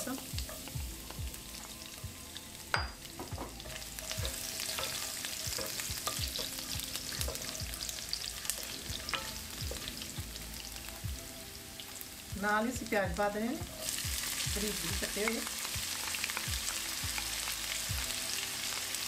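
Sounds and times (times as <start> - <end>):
spices sizzling in hot oil: 0.0 - 19.0
spoon knocking and scraping pan: 2.7 - 10.0.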